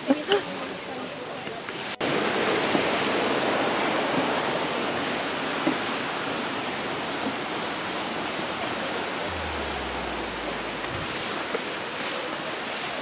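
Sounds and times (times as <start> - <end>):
low hum: 9.3 - 11.8.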